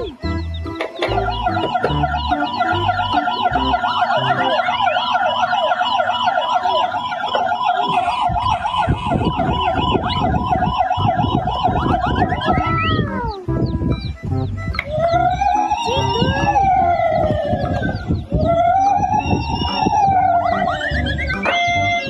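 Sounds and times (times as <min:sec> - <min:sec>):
emergency siren warbling: 0:00.0 - 0:13.8, 0:14.8 - 0:22.0
sliding whistle-like tones: 0:14.8 - 0:22.0.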